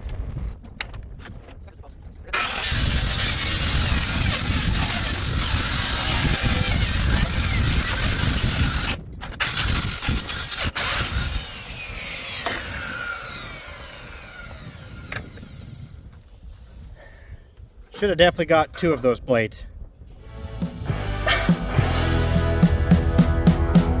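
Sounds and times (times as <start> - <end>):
circular saw cutting metal: 2.4 - 15.9
saw spinning down whine: 2.4 - 16.0.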